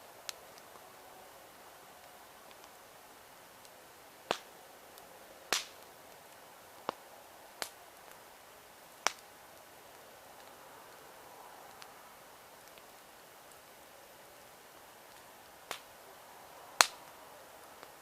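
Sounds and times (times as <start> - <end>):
fire hissing: 0.0 - 18.0
sharp pops from burning logs: 0.0 - 18.0.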